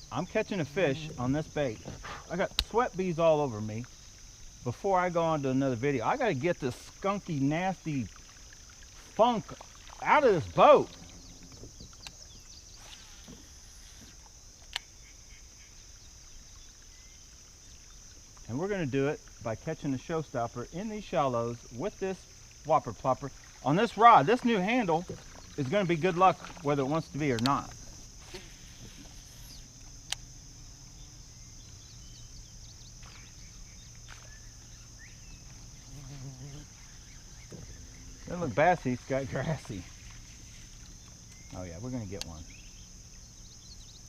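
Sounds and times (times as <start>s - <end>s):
insect chorus: 0.0s - 44.0s
faint bird chirps: 27.8s - 44.0s.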